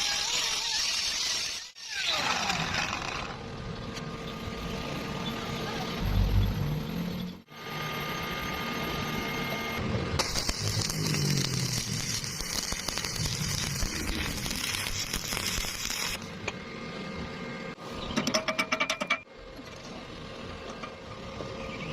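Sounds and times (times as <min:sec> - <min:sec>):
welding arc crackling and hissing: 0:10.2 - 0:16.4.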